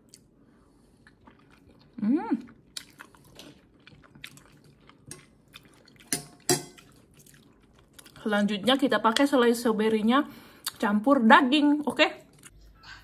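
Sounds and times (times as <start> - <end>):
person chewing soft food: 0.0 - 8.2.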